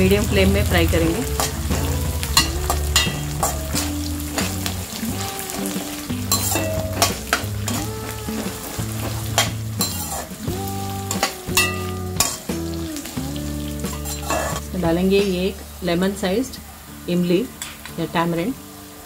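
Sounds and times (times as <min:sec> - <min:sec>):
food sizzling in hot oil: 0:00.0 - 0:19.0
spatula scraping metal pan: 0:01.1 - 0:10.4, 0:13.9 - 0:14.7.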